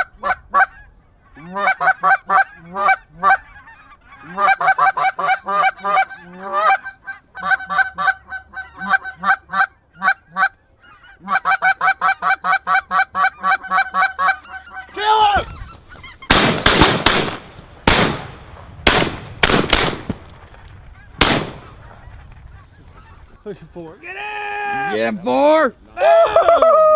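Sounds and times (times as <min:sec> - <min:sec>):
geese honking: 0:00.0 - 0:16.5, 0:21.0 - 0:25.3
shotgun blasts: 0:16.3 - 0:20.6, 0:21.2 - 0:21.8.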